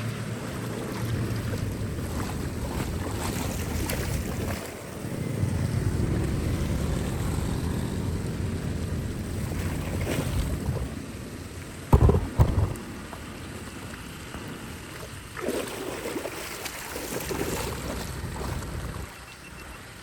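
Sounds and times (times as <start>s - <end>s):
splashing: 0.0s - 5.1s, 11.8s - 19.2s
wind rumble on microphone: 0.0s - 15.4s, 16.9s - 19.7s
water rushing: 0.0s - 20.0s
heavy thumps: 11.9s - 12.8s.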